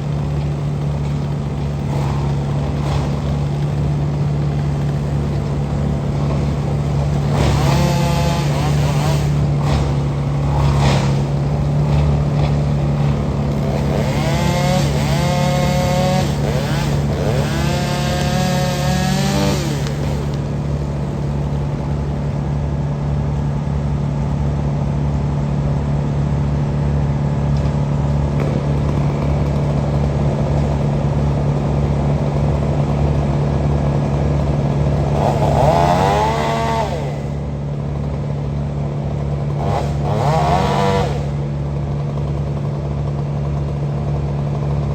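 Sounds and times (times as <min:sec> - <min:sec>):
saw chain revving: 0:00.0 - 0:21.1, 0:31.4 - 0:37.4, 0:39.4 - 0:41.4
heavy equipment engine running: 0:00.0 - 0:44.9.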